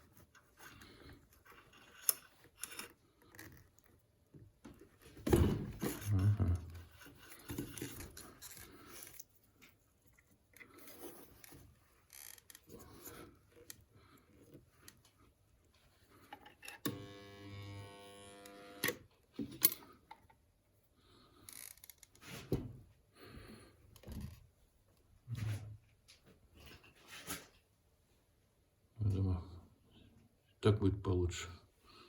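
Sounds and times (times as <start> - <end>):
spot welder transformer buzzing: 16.9 - 19.0.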